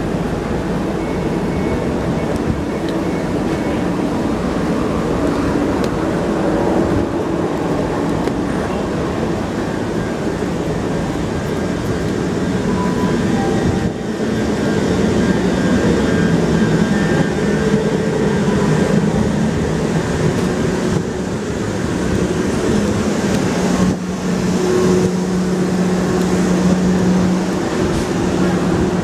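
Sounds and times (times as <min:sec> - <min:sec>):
electric train running rumble: 0:00.0 - 0:29.0.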